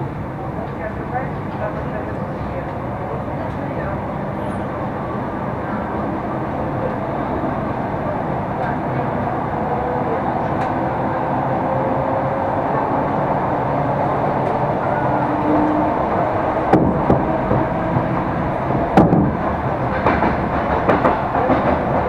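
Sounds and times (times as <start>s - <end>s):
train wheels rumbling on track: 0.0s - 22.0s
sharp knocks: 16.7s - 18.3s, 18.9s - 21.8s.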